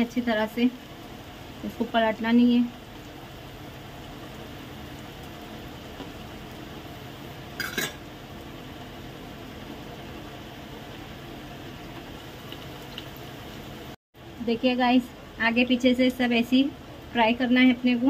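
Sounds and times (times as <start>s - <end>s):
food sizzling in oil: 0.0s - 18.0s
metal spatula clinking on pan: 7.6s - 8.0s.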